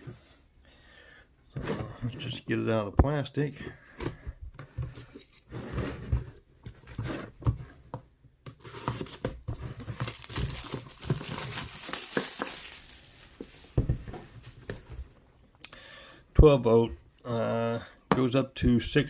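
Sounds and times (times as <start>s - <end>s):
plastic packaging crinkling: 8.8s - 13.8s.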